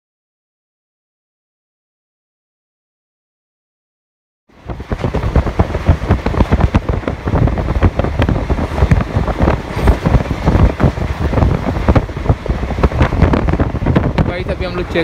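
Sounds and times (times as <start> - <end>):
wind buffeting microphone: 4.5 - 15.0
train rumbling and clattering on track: 4.6 - 15.0.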